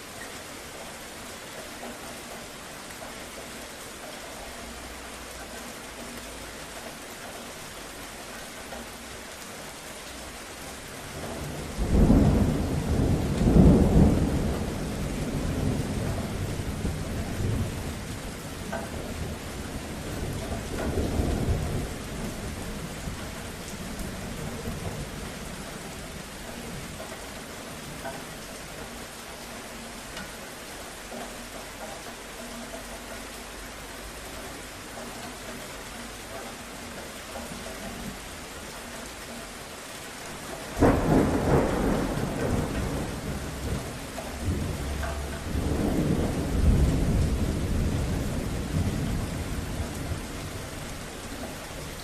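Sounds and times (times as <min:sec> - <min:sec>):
steady rain: 0:00.0 - 0:52.0
thunder rumbling: 0:11.0 - 0:29.1, 0:40.6 - 0:52.0.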